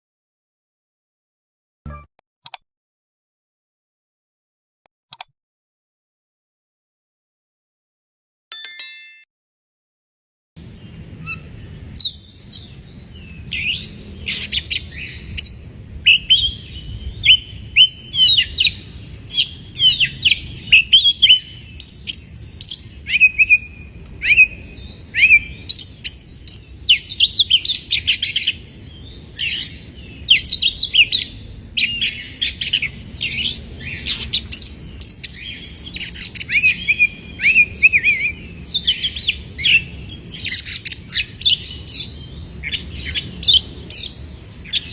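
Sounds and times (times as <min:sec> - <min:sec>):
magpie-robin singing: 0:10.6 - 0:44.9.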